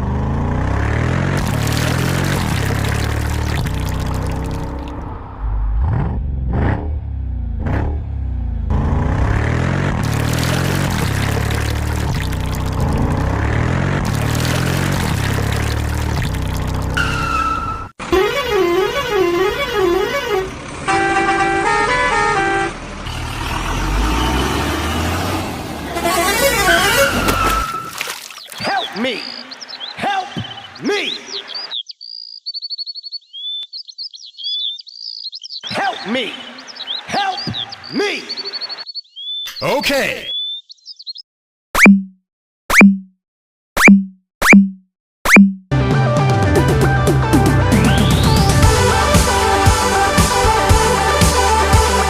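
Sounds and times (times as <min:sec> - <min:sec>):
heavy vehicle engine revving: 0:00.0 - 0:27.8, 0:47.0 - 0:52.0
stepped horn notes tune: 0:48.5 - 0:52.0.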